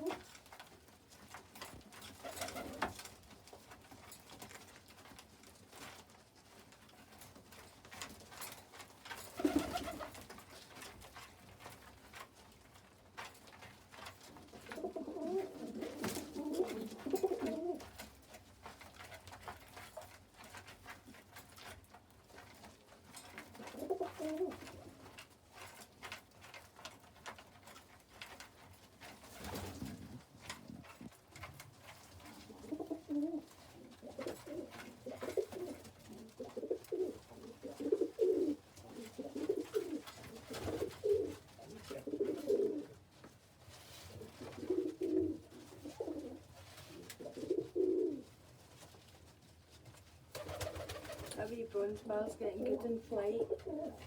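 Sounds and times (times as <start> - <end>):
pigeons cooing: 14.7 - 17.9, 23.6 - 24.7, 32.5 - 43.0, 44.1 - 48.2, 53.4 - 54.0.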